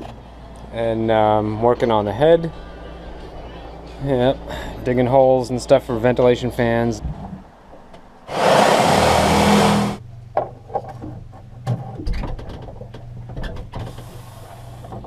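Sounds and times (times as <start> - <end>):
electric power tool cutting: 8.3 - 10.0.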